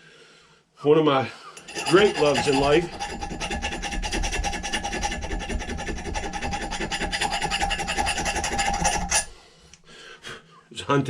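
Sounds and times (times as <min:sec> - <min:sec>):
abrasive tool scraping steel: 0:01.5 - 0:09.4.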